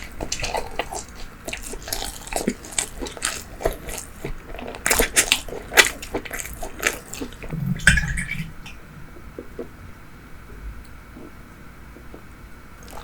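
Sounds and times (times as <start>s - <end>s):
biting and chewing pastry: 0.0s - 7.6s, 12.8s - 13.0s.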